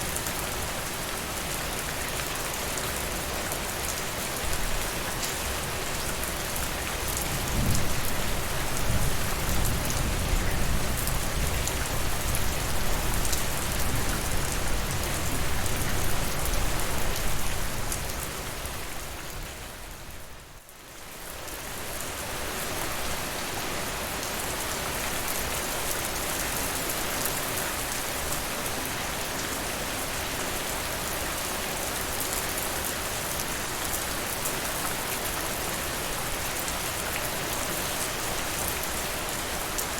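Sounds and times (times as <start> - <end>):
rain falling on surfaces: 0.0 - 39.9.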